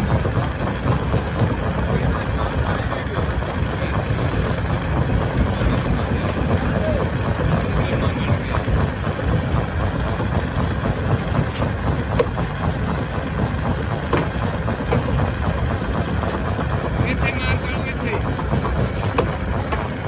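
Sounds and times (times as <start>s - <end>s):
stone crusher machine rumbling: 0.0s - 20.0s
sharp knocks: 14.1s - 15.2s.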